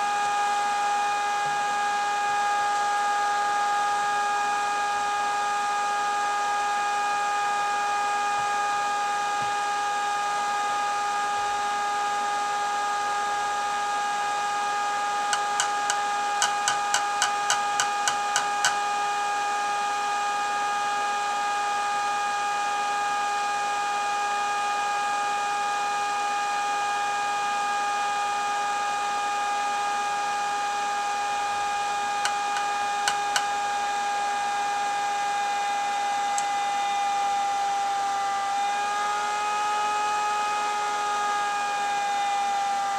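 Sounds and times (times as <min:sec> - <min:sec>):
electrical hum with high tones: 0:00.0 - 0:20.1, 0:30.4 - 0:42.9.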